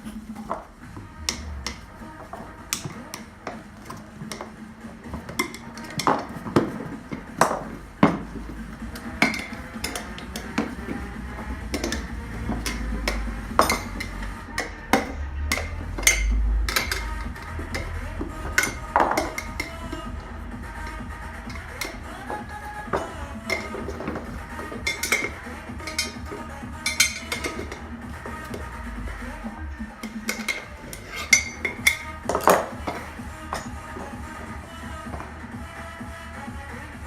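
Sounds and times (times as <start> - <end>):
faint background music: 0.0 - 37.0
metal hand tools clinking: 5.1 - 8.2, 8.9 - 11.0, 11.7 - 20.2, 20.8 - 28.6, 30.0 - 34.2.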